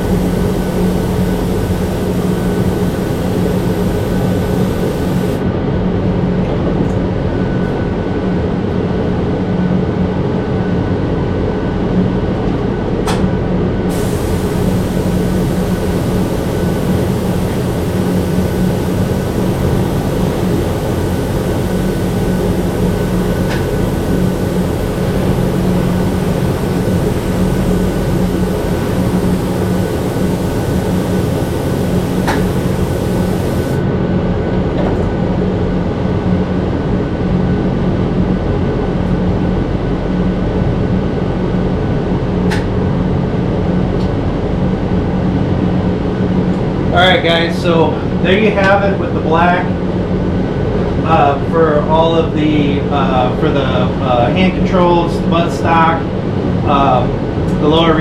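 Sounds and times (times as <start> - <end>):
spray air hissing: 0.0 - 5.4, 13.9 - 33.8
loud mechanical hum: 0.0 - 58.0.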